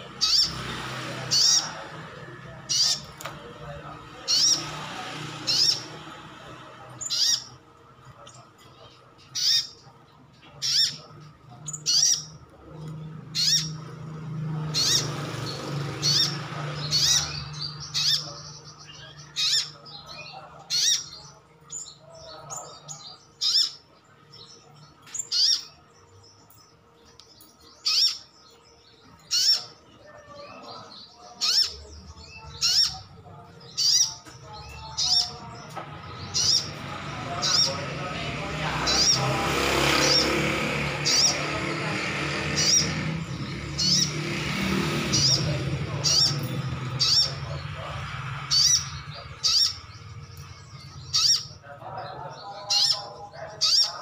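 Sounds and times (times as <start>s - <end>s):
sunbird sharp high calls: 9.4s - 9.8s, 25.1s - 25.8s, 51.1s - 51.6s.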